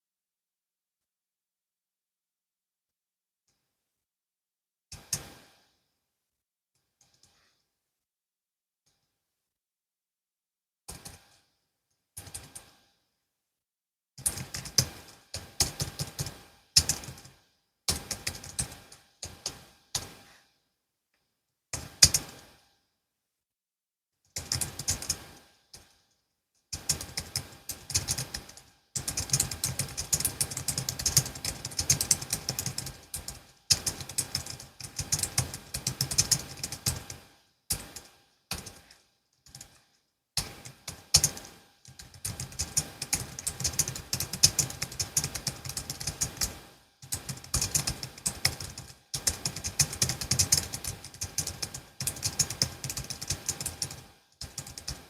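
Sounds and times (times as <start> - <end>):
typing on keyboard: 10.9 - 11.3, 12.2 - 12.7, 14.2 - 17.3, 17.9 - 20.2, 21.8 - 22.4, 24.4 - 26.0, 26.7 - 55.0.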